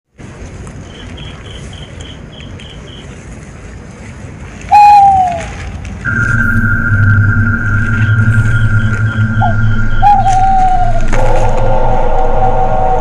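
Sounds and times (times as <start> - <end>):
bird hooting call: 4.7 - 13.0
high pips: 4.8 - 12.8
steady tone with low hum: 5.8 - 13.0.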